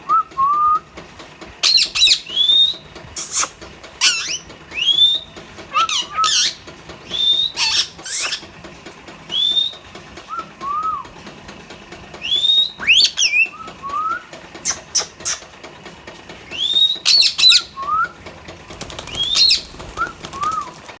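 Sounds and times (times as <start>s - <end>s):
parrots screeching: 1.6s - 2.3s, 5.7s - 6.6s, 7.2s - 8.4s, 18.8s - 20.6s
parrots whistling: 1.6s - 8.5s, 12.2s - 15.4s, 16.5s - 18.1s, 18.8s - 20.8s.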